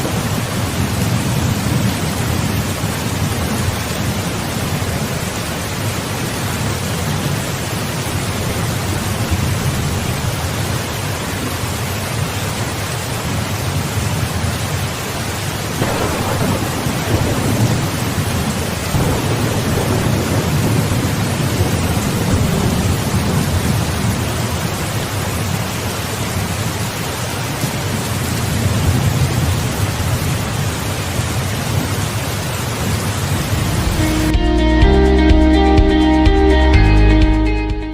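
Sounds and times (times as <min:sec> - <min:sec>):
steady rain falling: 0:00.0 - 0:37.4
thunder cracking and rumbling: 0:15.8 - 0:24.2, 0:32.8 - 0:34.4.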